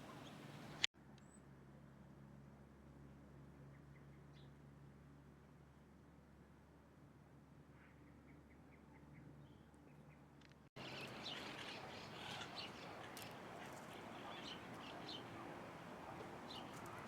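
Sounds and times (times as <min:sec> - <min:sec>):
birds chirping: 0:10.8 - 0:17.0.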